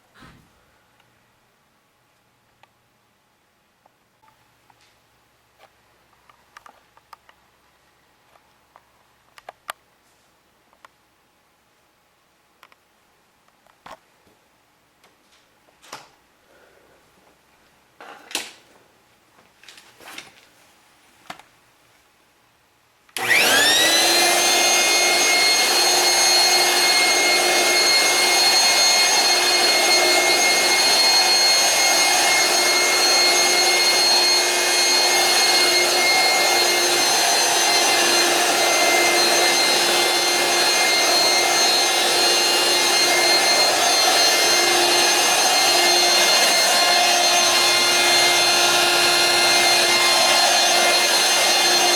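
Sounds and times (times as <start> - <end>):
vacuum cleaner motor whine: 23.2 - 51.9.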